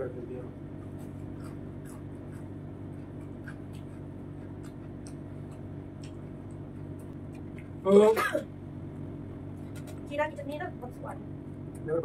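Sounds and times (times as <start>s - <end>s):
steady low hum: 0.0s - 12.0s
man chewing food: 0.6s - 7.8s.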